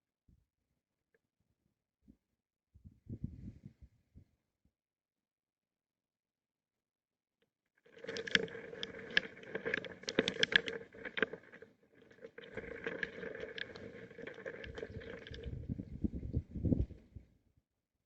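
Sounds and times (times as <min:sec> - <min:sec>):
rain pattering: 0:07.9 - 0:15.6.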